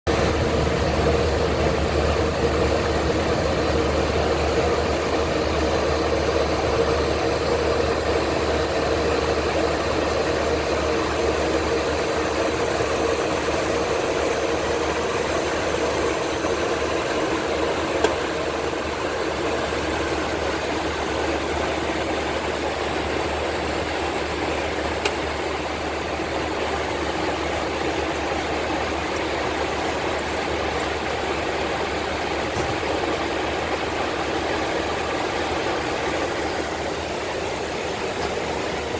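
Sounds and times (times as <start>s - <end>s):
airliner cabin noise: 0.1s - 22.7s.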